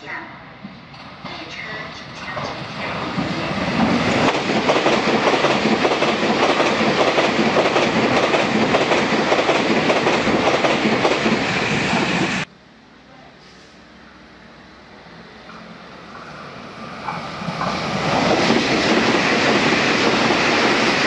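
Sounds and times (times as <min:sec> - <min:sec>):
train passing at high speed: 0:00.0 - 0:12.8, 0:13.8 - 0:21.0.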